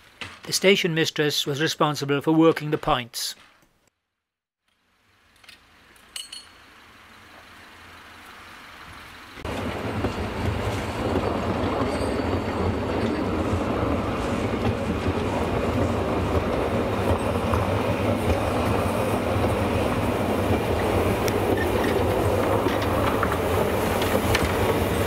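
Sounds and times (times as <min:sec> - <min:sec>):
steam locomotive working: 0:08.9 - 0:25.0
train coaches clattering over rail joints: 0:09.5 - 0:25.0.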